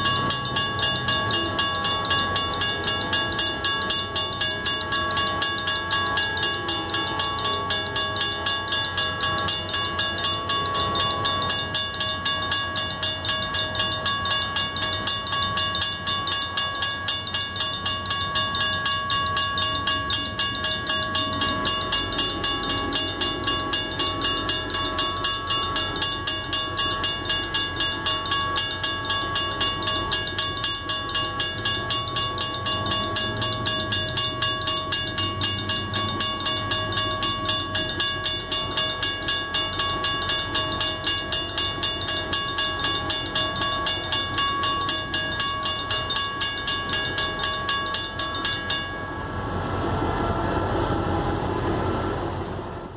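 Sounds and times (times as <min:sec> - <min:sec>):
railroad crossing bells ringing: 0:00.0 - 0:52.9
train low rumble: 0:00.0 - 0:52.9.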